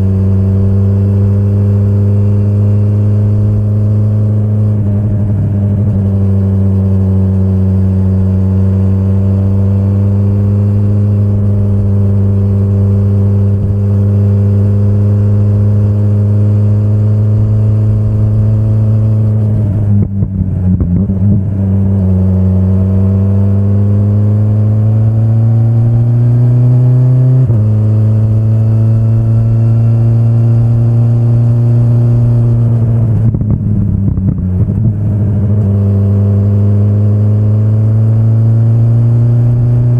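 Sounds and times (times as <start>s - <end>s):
motorcycle engine revving: 0.0s - 39.9s
clatter: 32.6s - 36.0s.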